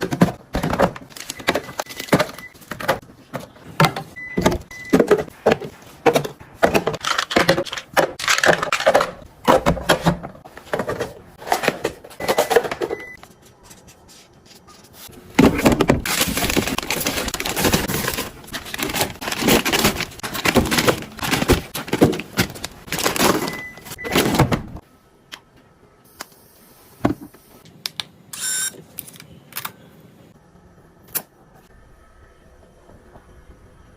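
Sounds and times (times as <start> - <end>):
packaging rustling and clatter: 0.0 - 4.1, 15.4 - 24.4
plastic containers clicking and knocking: 0.0 - 13.1, 15.4 - 24.2.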